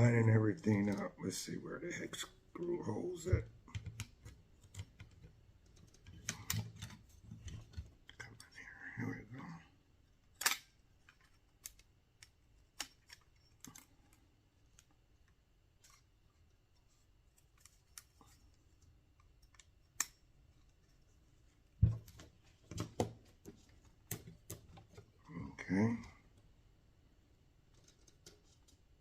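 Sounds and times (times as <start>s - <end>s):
small parts clicking and tapping: 27.7s - 28.9s.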